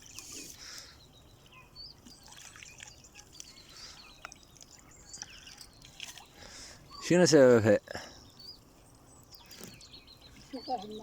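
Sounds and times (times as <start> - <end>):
bird chirps: 0.0 - 7.2, 8.0 - 11.0
water trickling and dripping: 2.0 - 6.5.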